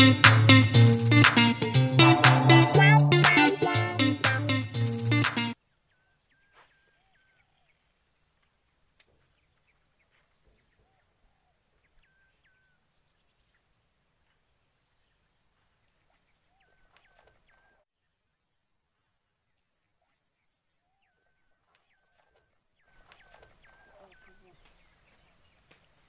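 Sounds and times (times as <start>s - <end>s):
bird calls: 5.5s - 18.1s, 19.5s - 26.0s.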